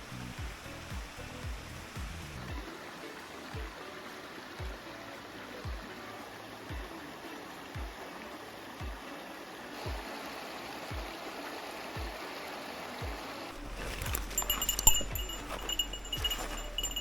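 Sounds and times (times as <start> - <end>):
mountain stream rushing: 0.0 - 17.0
high ringing chime-like tones: 13.6 - 17.0.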